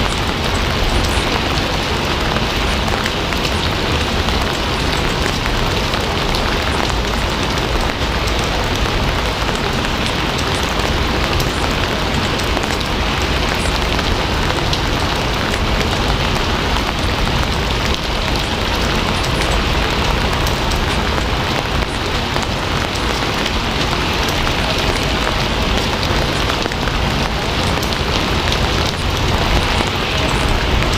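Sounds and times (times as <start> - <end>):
heavy rain falling: 0.0 - 30.9.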